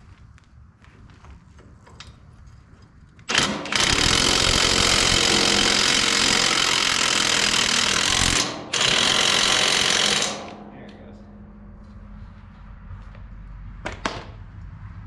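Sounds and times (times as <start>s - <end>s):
impact wrench rattling: 3.3s - 10.7s.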